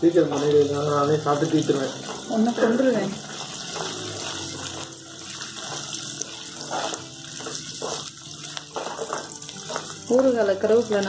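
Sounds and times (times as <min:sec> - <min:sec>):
food sizzling in hot oil: 0:00.0 - 0:11.0
metal ladle scraping a pan: 0:01.9 - 0:09.9.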